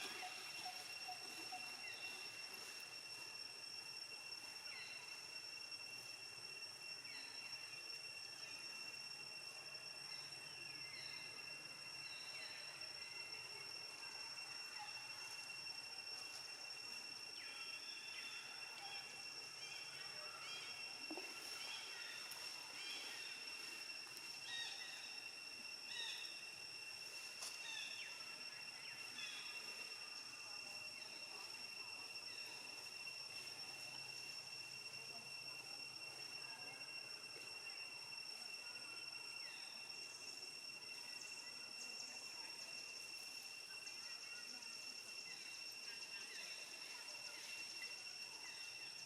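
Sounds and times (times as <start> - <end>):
high-pitched insect drone: 0.0 - 49.0.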